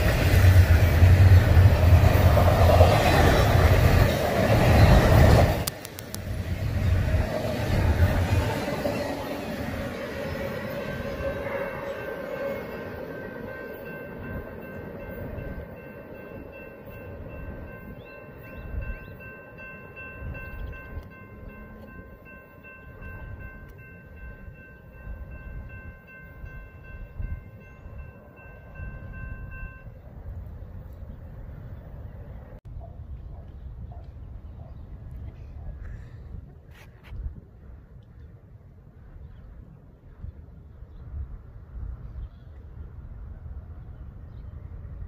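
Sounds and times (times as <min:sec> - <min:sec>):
train cars rumbling away: 0:00.0 - 0:32.6.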